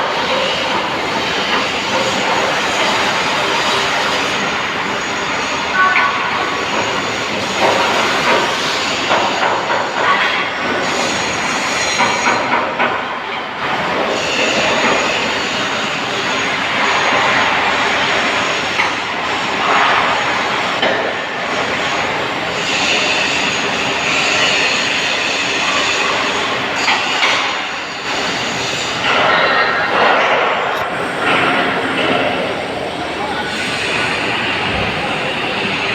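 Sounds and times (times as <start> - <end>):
welder arc crackling and hissing: 30.7 - 35.9.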